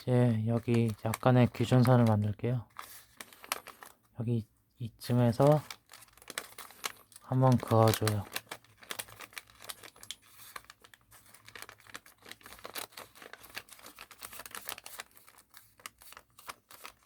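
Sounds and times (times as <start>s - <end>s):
paper rustling and crinkling: 0.0s - 4.1s, 5.1s - 17.0s.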